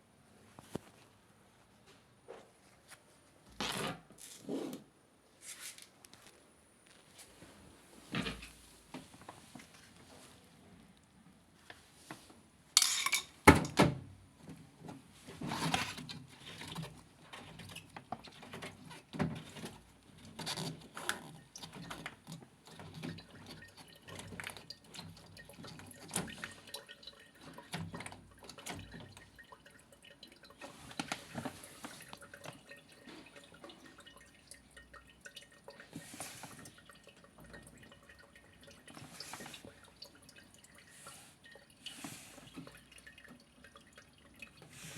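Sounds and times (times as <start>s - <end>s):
water dripping and trickling: 16.0s - 44.9s.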